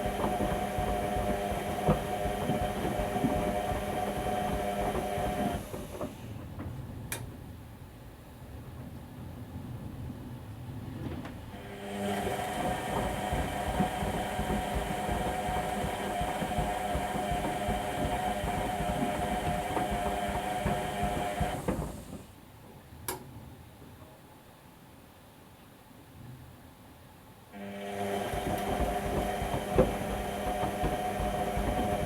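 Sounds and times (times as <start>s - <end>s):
washing machine running: 0.0s - 7.8s, 10.6s - 22.5s, 27.6s - 32.0s.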